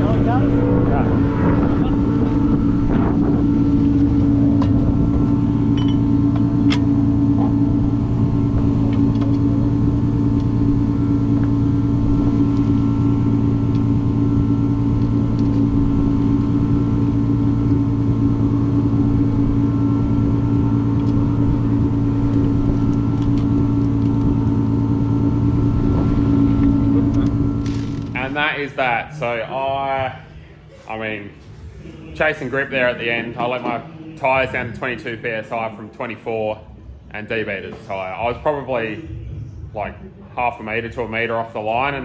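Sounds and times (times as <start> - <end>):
car engine running steadily: 0.0 - 29.0.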